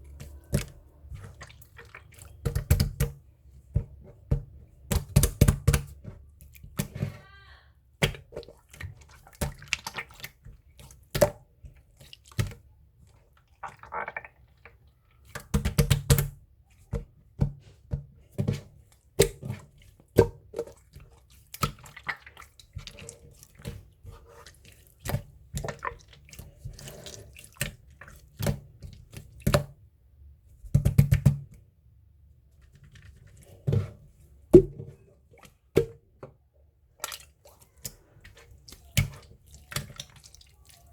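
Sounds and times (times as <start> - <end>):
slime squishing wet clicks: 36.9 - 40.9.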